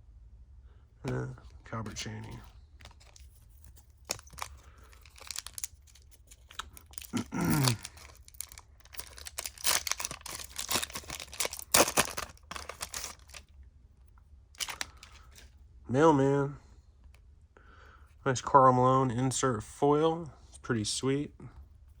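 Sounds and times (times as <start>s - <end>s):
cards being handled: 1.0s - 13.5s, 14.6s - 15.5s
foil wrapper crinkling and tearing: 2.8s - 13.5s, 14.6s - 15.5s.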